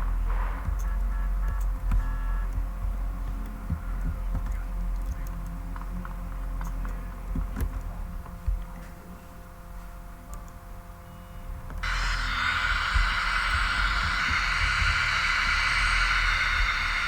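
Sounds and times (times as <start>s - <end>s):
faint high hum: 0.0s - 17.0s
low throbbing drone: 11.7s - 17.0s.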